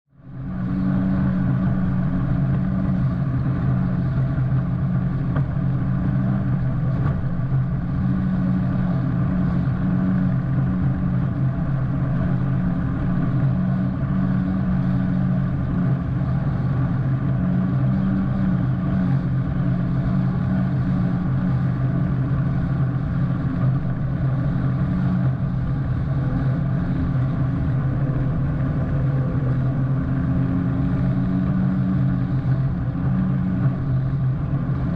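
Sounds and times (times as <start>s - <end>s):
wind: 0.0s - 34.9s
jet ski engine droning: 0.1s - 34.9s
water rushing: 19.2s - 34.9s.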